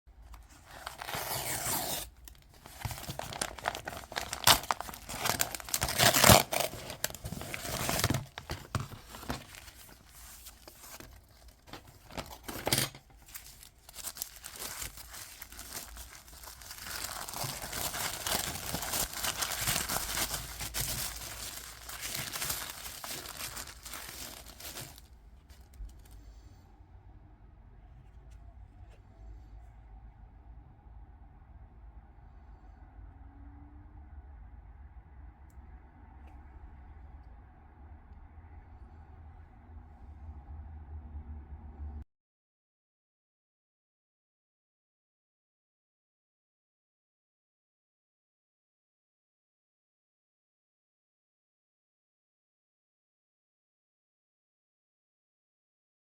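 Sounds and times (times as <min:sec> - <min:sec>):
packaging crinkling and rustling: 0:00.3 - 0:26.1
packaging tearing: 0:00.4 - 0:26.1.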